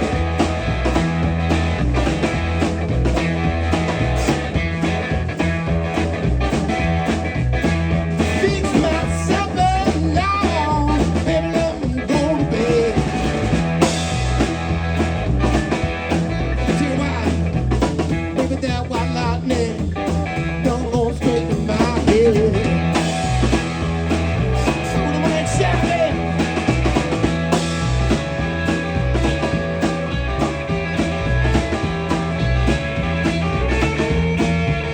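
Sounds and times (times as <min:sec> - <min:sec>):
bass and drums: 0:00.0 - 0:34.9
lead guitar with bent notes: 0:00.0 - 0:34.9.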